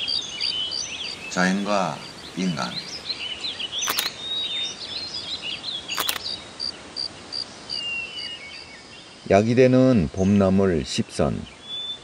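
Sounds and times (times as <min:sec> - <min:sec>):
small birds chirping and twittering: 0:00.0 - 0:12.0
sharp clicks: 0:03.8 - 0:04.2, 0:06.0 - 0:06.3.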